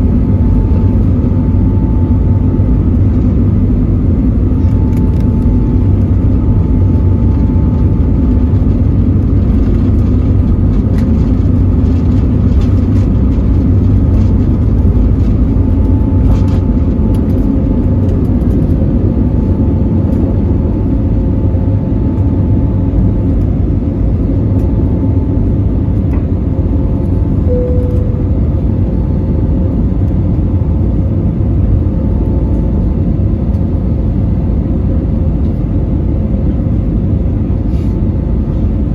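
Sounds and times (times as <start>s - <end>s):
airliner cabin roar: 0.0s - 38.9s
faint steady whining tones: 12.2s - 34.4s
short high tone: 27.5s - 28.6s.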